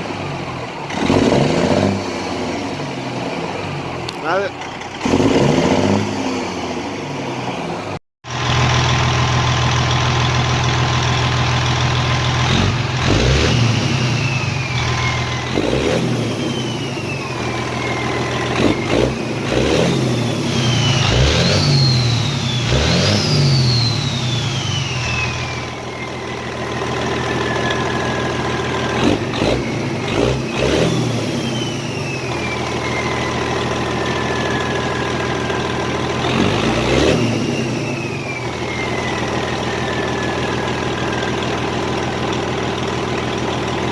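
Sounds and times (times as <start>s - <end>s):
diesel truck engine revving: 0.0s - 43.9s
turbo whistle: 19.7s - 28.6s, 31.4s - 35.2s, 37.2s - 41.3s.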